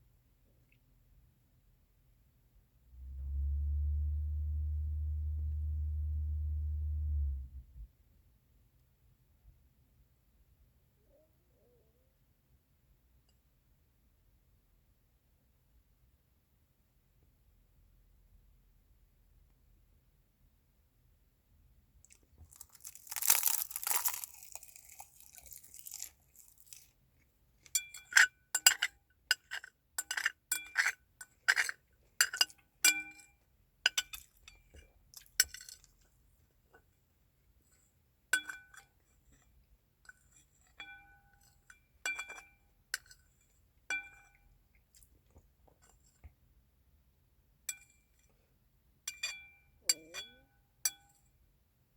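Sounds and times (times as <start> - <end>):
crinkling: 22.1 - 27.0.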